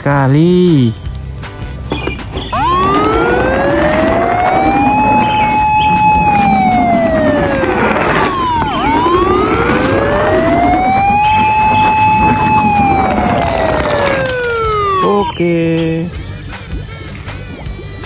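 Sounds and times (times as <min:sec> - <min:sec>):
wailing fire engine siren: 0:02.5 - 0:15.3.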